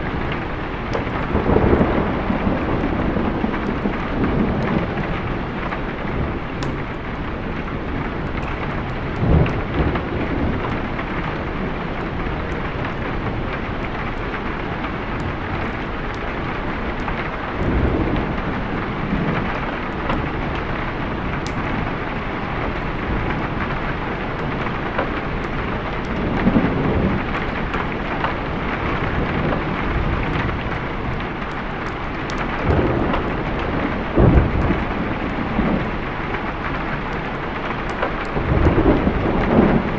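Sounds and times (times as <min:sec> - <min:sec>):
thunder rolling: 0:00.0 - 0:06.9, 0:17.5 - 0:39.9
heavy rain: 0:00.0 - 0:39.9.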